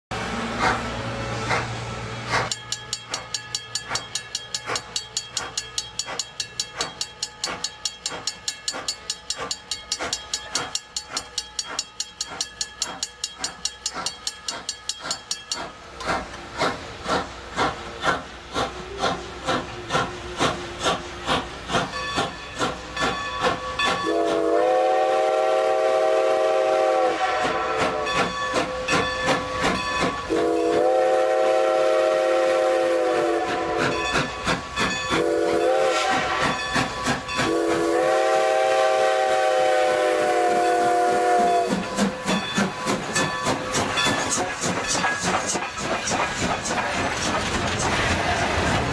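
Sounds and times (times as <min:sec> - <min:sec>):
steam locomotive exhaust chuffing: 0:00.1 - 0:48.9
steam whistle chord: 0:23.5 - 0:29.0, 0:30.3 - 0:34.3, 0:35.1 - 0:43.1.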